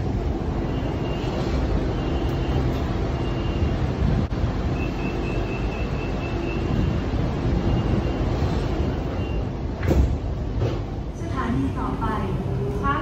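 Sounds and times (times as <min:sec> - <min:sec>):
train low rumble: 0:00.0 - 0:13.0
high door warning beeps: 0:00.6 - 0:04.0, 0:04.6 - 0:09.6.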